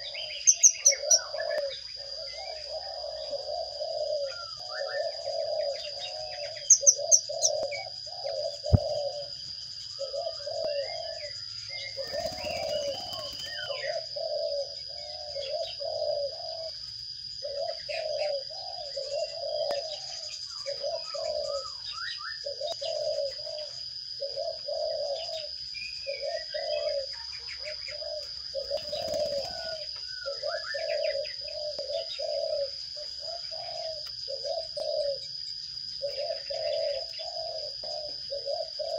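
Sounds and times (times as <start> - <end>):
bird cooing call: 0.0 - 38.9
wings flapping: 12.0 - 13.7, 28.6 - 29.8.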